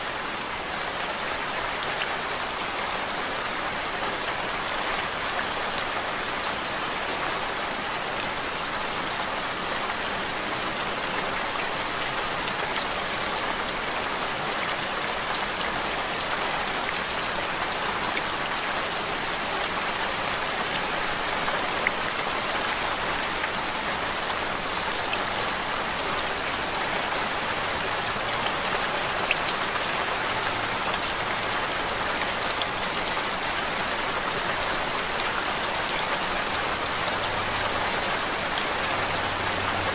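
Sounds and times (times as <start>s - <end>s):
rain-like white noise hiss: 0.0s - 39.9s.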